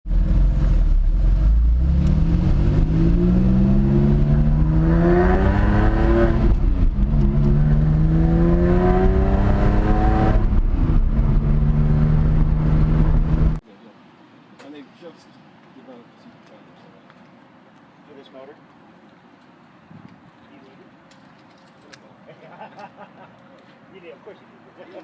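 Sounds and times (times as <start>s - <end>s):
car engine accelerating: 0.1s - 13.6s.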